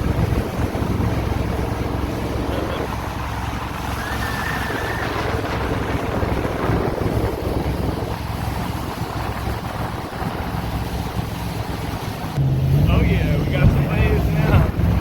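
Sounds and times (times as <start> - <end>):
boat engine low rumble: 0.0 - 15.0
wind buffeting microphone: 0.0 - 15.0.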